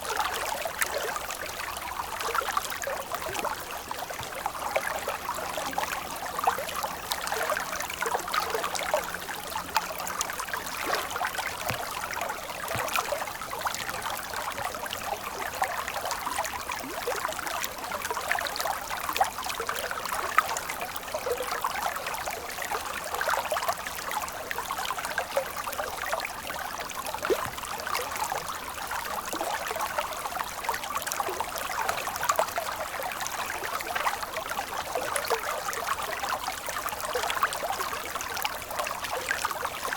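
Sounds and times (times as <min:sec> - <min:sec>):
stream of water flowing: 0:00.0 - 0:39.9
water drips and plops: 0:08.4 - 0:17.3.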